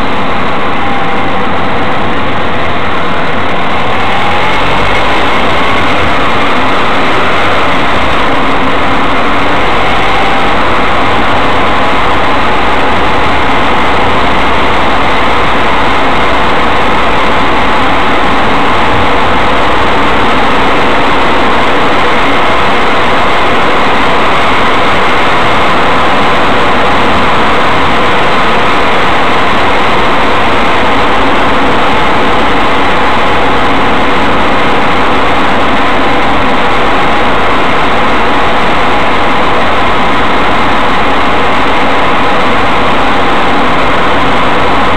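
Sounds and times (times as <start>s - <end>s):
car engine and road noise: 0.0s - 44.9s.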